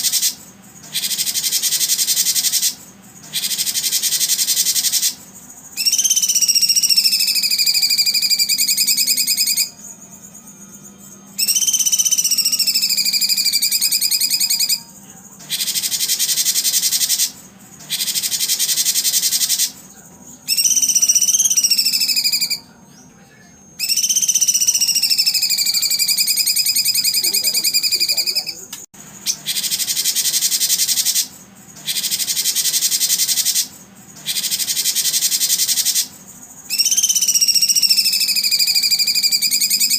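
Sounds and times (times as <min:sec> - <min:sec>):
high buzzing animal calls: 0:00.0 - 0:39.9
wailing whistle: 0:05.8 - 0:19.8, 0:20.5 - 0:22.8, 0:23.6 - 0:28.7, 0:29.5 - 0:39.9.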